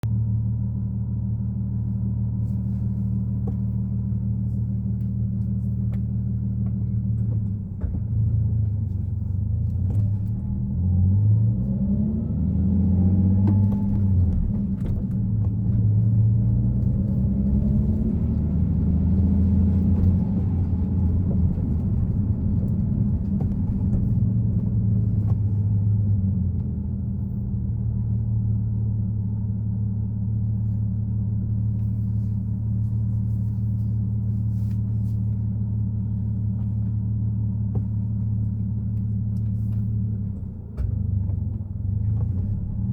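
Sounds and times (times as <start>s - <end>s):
car engine revving while driving: 7.2s - 28.8s, 37.8s - 42.9s.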